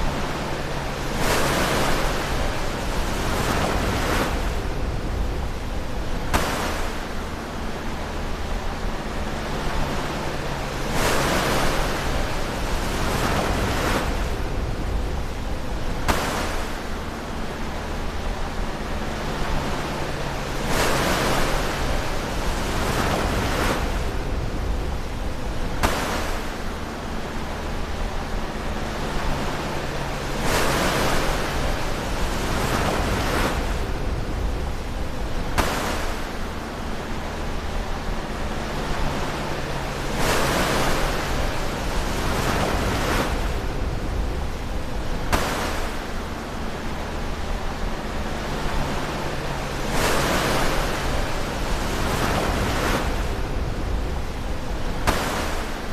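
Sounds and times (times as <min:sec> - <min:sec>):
low rumble of surf: 0:00.0 - 0:55.9
ocean waves breaking: 0:00.0 - 0:55.9
sharp splash: 0:06.3 - 0:07.1, 0:16.0 - 0:17.0, 0:25.7 - 0:26.7, 0:35.4 - 0:36.6, 0:45.2 - 0:46.4, 0:54.9 - 0:55.9.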